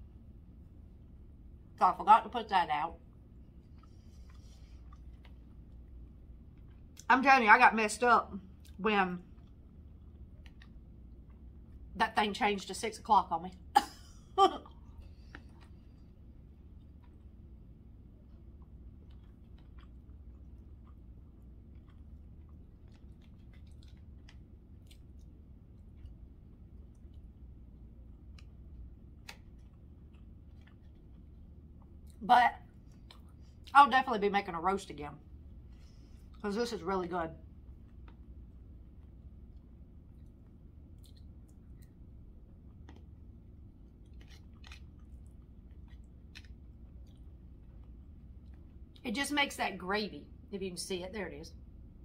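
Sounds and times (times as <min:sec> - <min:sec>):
low steady hum: 0:00.0 - 0:52.0
person chewing food: 0:03.1 - 0:07.1, 0:08.5 - 0:11.9, 0:14.6 - 0:33.7, 0:37.4 - 0:49.0
small mouth clicks: 0:41.0 - 0:42.0.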